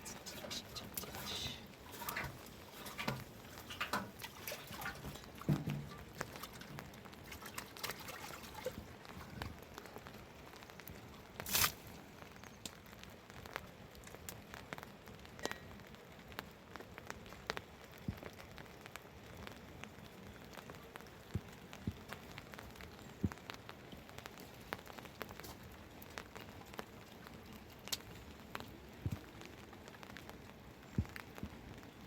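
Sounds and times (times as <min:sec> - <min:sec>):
rain falling: 0:00.0 - 0:32.0
drops striking surfaces: 0:04.9 - 0:06.9.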